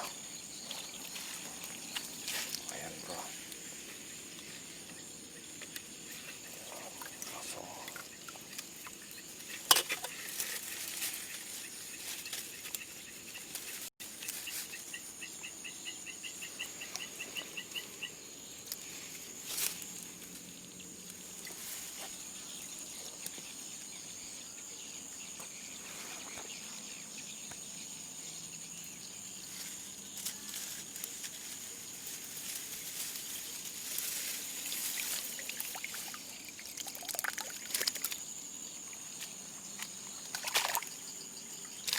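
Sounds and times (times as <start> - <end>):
high-pitched insect chorus: 0.0 - 41.9
sharp clicks or splashes: 35.4 - 38.2, 39.8 - 40.9.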